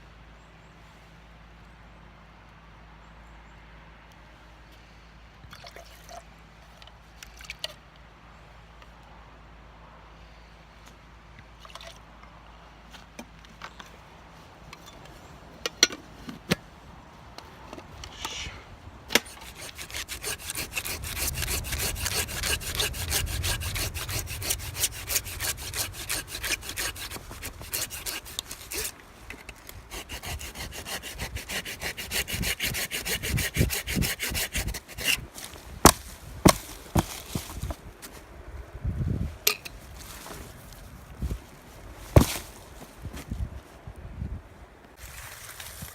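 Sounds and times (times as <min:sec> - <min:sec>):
hand saw cutting wood: 0:19.1 - 0:37.7, 0:42.2 - 0:42.4.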